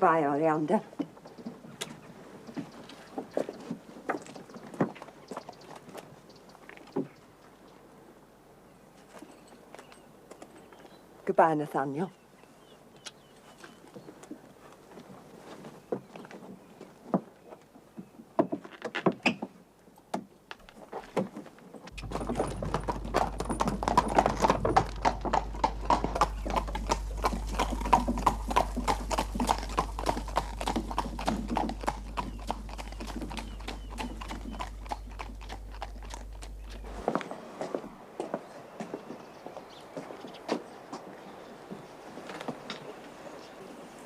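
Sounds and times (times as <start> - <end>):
horse hooves clip-clopping: 0.7 - 7.7, 13.0 - 42.9
low hum: 21.9 - 37.2.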